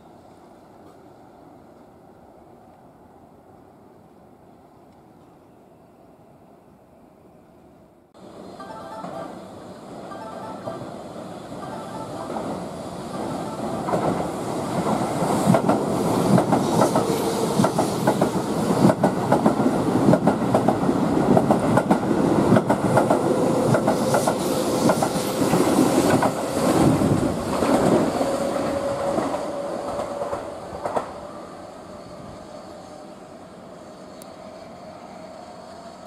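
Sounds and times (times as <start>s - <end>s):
train wheels clattering: 13.8s - 31.2s.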